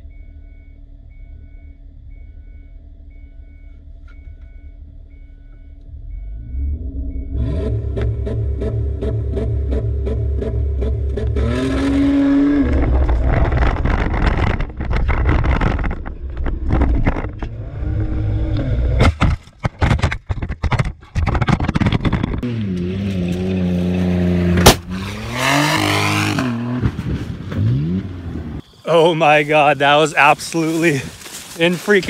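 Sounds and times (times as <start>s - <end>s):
car engine revving: 5.8s - 19.2s, 22.3s - 28.6s
body rattles and knocks: 12.8s - 17.5s, 19.0s - 22.4s
sharp loud bang: 24.6s - 25.0s.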